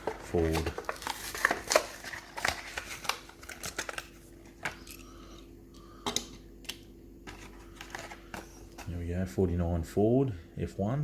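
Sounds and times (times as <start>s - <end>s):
plastic blister pack crackling: 0.0s - 5.0s.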